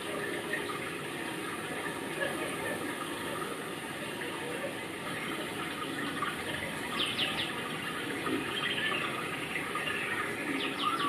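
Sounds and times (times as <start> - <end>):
small bird chirping: 7.0 - 7.6.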